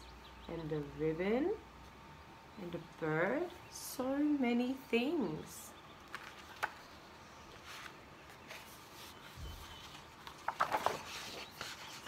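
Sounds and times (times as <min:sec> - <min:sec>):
clicks and rustles: 0:09.8 - 0:12.0.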